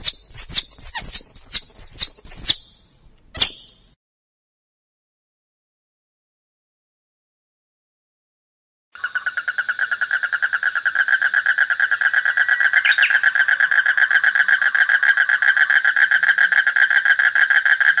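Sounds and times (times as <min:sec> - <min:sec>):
tree frog croaking: 0:00.0 - 0:02.7, 0:09.0 - 0:18.0.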